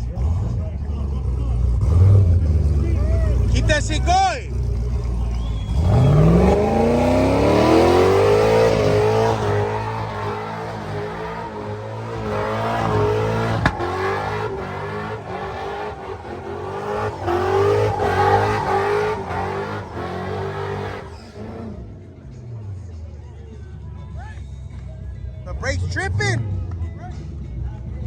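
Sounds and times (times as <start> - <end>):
truck engine revving: 0.0 - 23.1.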